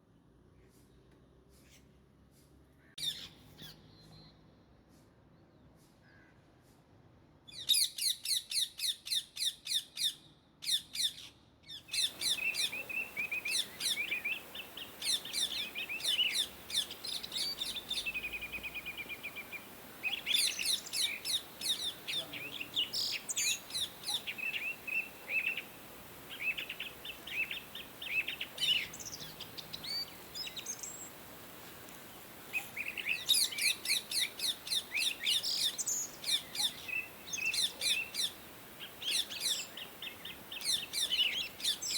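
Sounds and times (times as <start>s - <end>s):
parakeets chirping: 12.0s - 31.2s.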